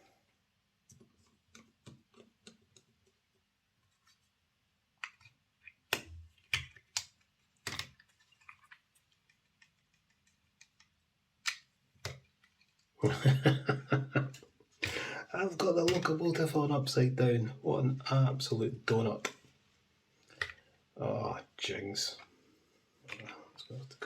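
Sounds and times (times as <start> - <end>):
small plastic and metal parts clicking: 5.0 - 12.9.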